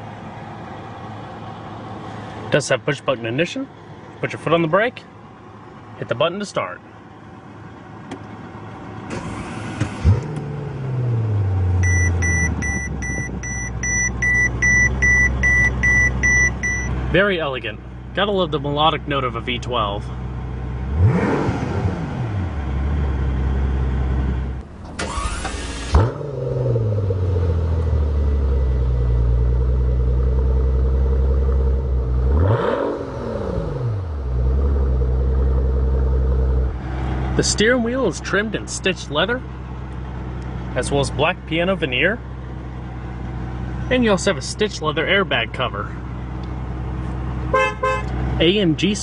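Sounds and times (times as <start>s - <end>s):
car engine starting and idling: 0.0s - 49.0s
dashboard warning chime beeping: 11.8s - 16.9s
starter motor cranking: 24.9s - 26.0s.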